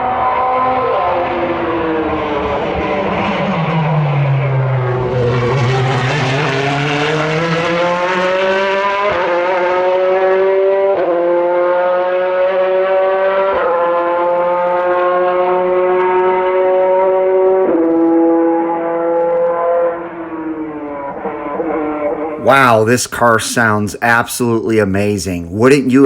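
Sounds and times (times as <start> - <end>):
race car engine accelerating: 0.3 - 21.1.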